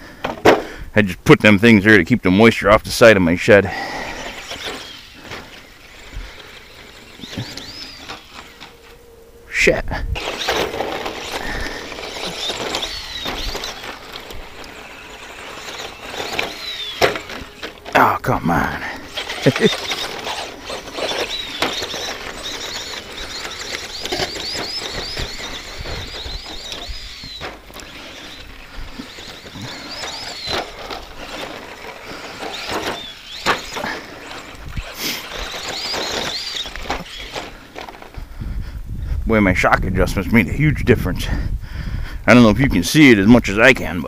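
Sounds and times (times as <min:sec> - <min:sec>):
toy truck landing knocks: 0:00.2 - 0:00.7, 0:15.6 - 0:17.9, 0:19.2 - 0:28.2, 0:29.0 - 0:38.1
electric motor whining: 0:03.7 - 0:38.4.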